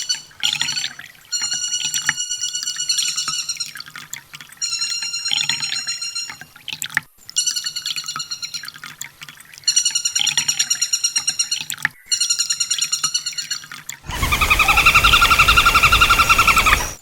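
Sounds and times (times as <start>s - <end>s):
harsh bird trill: 9.7s - 17.0s
hiss: 14.1s - 17.0s
sunbird fast high trill: 14.1s - 17.0s.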